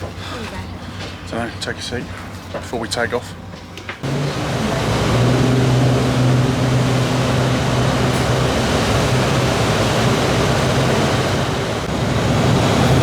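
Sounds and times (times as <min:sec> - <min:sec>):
ferry engines droning: 0:03.3 - 0:13.0
water rushing against hull: 0:04.0 - 0:13.0.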